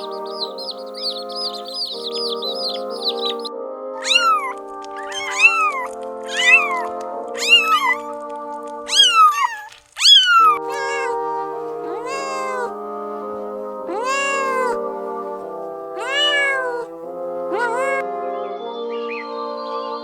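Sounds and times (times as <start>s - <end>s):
high bird chirps: 0.0s - 3.5s
music with sustained chords: 0.0s - 5.0s, 16.9s - 20.0s
cat meowing: 0.0s - 8.1s, 8.9s - 12.8s, 13.9s - 18.0s.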